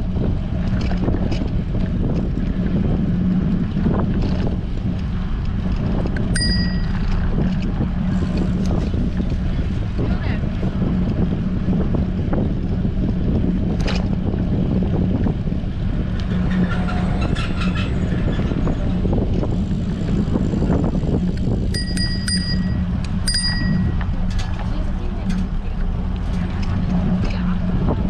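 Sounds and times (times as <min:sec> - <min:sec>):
wind buffeting microphone: 0:00.0 - 0:28.0
bicycle bell ringing: 0:06.3 - 0:07.2, 0:21.7 - 0:24.1.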